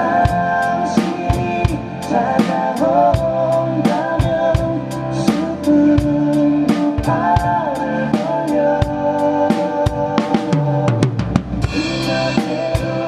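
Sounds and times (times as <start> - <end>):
acoustic drum kit: 0.0 - 13.0
backing track music: 0.0 - 13.0.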